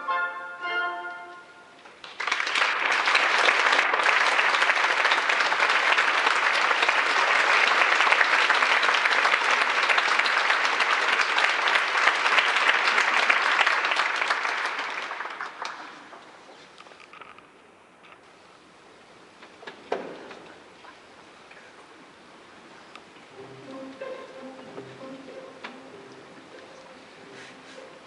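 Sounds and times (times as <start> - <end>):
audience applause: 2.0 - 16.4.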